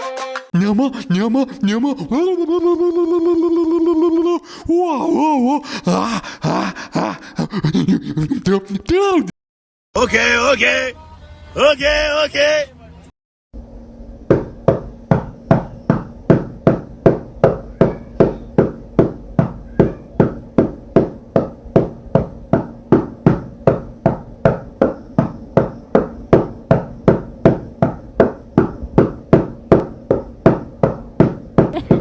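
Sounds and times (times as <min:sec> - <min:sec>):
hammering with ringing tone: 0:13.6 - 0:32.0.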